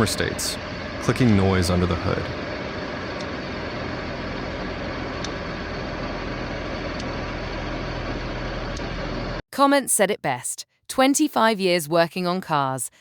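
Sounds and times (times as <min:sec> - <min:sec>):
car engine running: 0:00.0 - 0:09.4.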